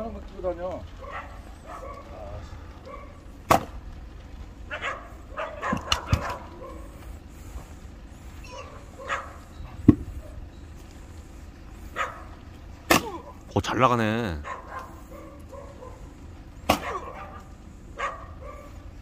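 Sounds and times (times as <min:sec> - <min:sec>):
dog barking: 0:00.9 - 0:03.3, 0:04.7 - 0:07.0, 0:08.5 - 0:09.5, 0:11.9 - 0:12.4, 0:14.4 - 0:18.9
axe splitting firewood: 0:03.4 - 0:03.8, 0:05.6 - 0:06.4, 0:12.8 - 0:13.5, 0:16.6 - 0:17.2.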